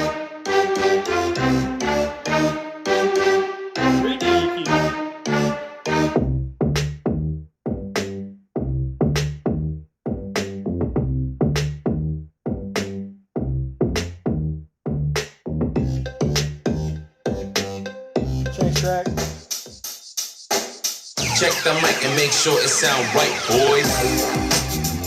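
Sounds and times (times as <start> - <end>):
electronic music with deep bass: 3.8 - 7.1, 15.6 - 19.6, 21.2 - 25.0.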